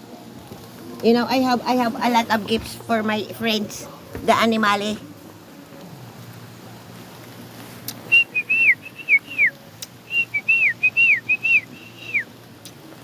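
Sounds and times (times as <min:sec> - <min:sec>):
person whistling calling signal: 0:08.1 - 0:12.3.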